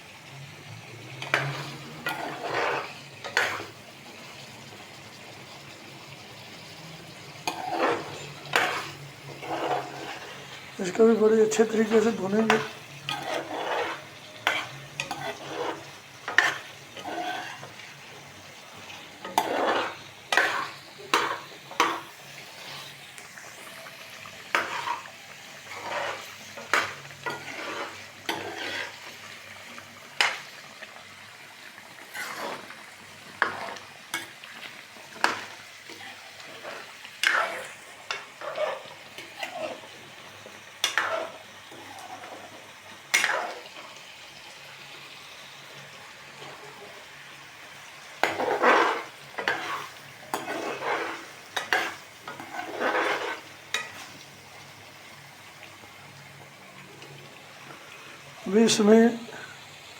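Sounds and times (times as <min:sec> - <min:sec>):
oil sizzling: 0:00.0 - 0:59.9
spoon scraping a pan: 0:01.0 - 0:04.5, 0:06.4 - 0:30.9, 0:31.6 - 0:44.1, 0:45.7 - 0:54.4.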